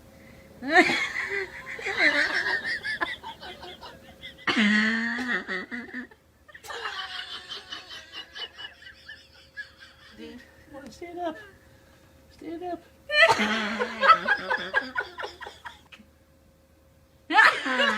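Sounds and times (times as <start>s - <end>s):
people laughing hard: 0.7s - 10.2s, 13.1s - 15.8s, 17.3s - 17.9s.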